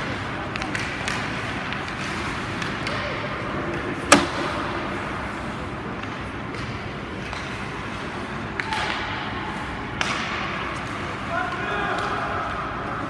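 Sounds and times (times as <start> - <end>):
hockey sticks and puck clicking: 0.1 - 9.1, 9.9 - 12.6
sharp puck hit: 4.1 - 5.1.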